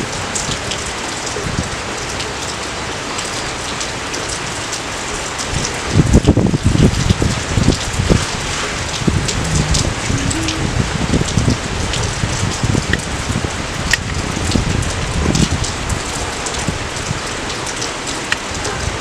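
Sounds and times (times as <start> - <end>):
steady rain patter: 0.0 - 19.0
low thumps: 9.1 - 11.3.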